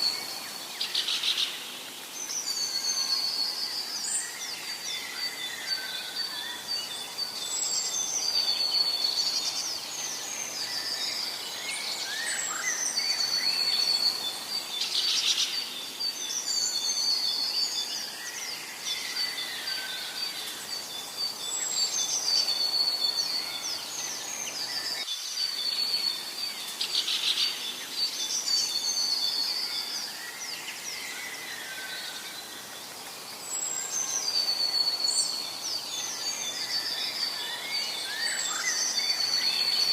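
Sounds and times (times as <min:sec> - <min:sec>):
faint background hiss: 0:00.0 - 0:39.9
bird whistled song: 0:02.2 - 0:32.1, 0:33.5 - 0:39.9.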